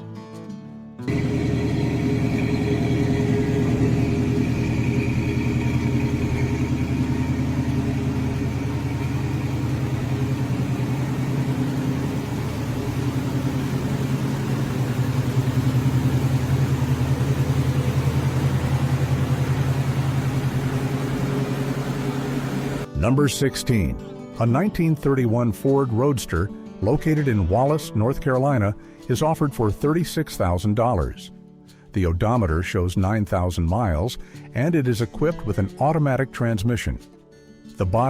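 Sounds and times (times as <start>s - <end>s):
car engine idling: 1.1s - 22.9s.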